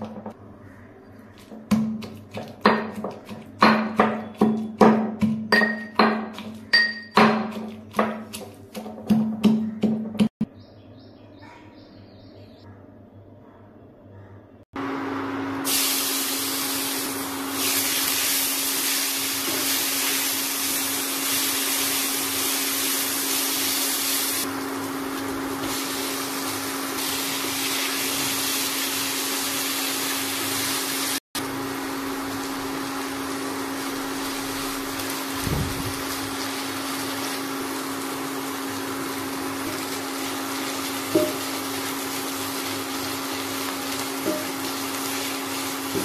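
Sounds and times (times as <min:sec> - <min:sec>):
vegetables sizzling in a pan: 0:15.6 - 0:46.0.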